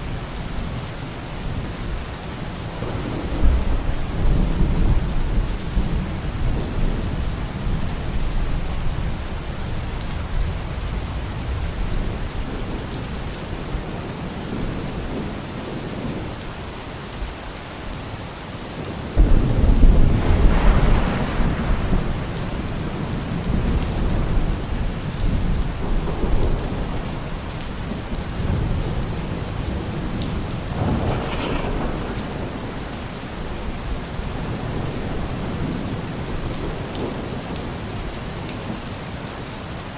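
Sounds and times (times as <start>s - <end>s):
steady rain falling: 0.0s - 39.9s
low thunder rumbling: 1.6s - 16.5s, 18.8s - 38.8s
loud thunder clap: 19.2s - 22.7s, 30.7s - 32.9s.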